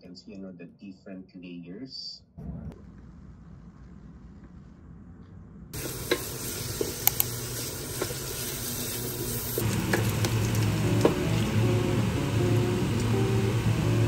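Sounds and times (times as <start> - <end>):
onions sizzling in a pan: 5.8 - 14.0.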